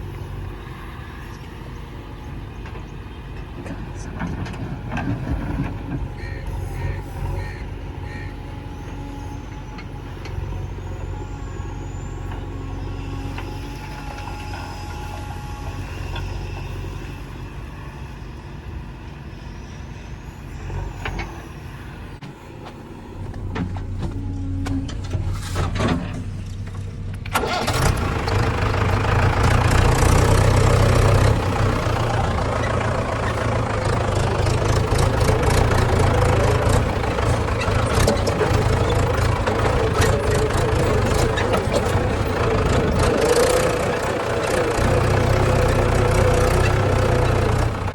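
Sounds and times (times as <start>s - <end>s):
heavy diesel engine running: 23.0s - 47.9s.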